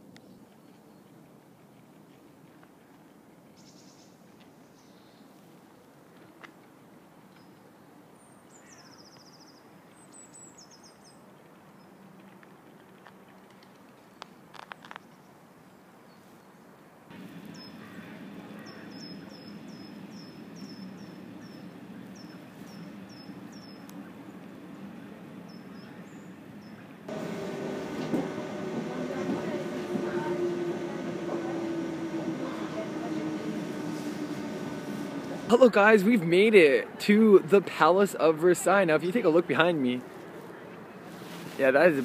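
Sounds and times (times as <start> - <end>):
faint outdoor hum: 0.1 - 42.0
small birds chirping: 7.3 - 12.6, 16.1 - 35.5
moving train rumble: 17.1 - 37.3.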